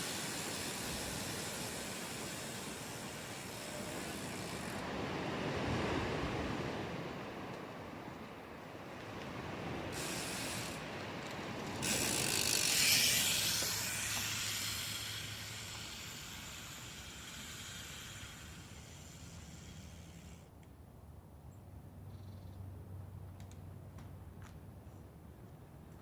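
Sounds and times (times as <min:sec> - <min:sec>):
bicycle freehub buzzing: 0:00.0 - 0:05.0, 0:09.9 - 0:20.5.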